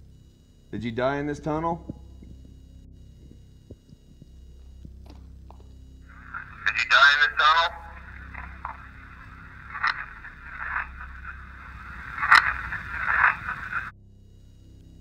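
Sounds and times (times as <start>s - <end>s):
faint low hum: 0.0s - 15.0s
scraping and crackling: 8.0s - 13.9s.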